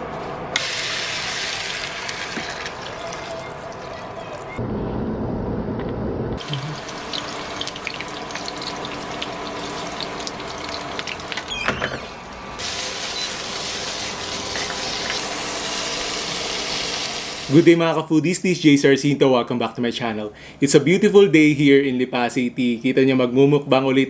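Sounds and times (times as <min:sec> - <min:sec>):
tap water running: 0:00.6 - 0:04.6, 0:06.4 - 0:17.6.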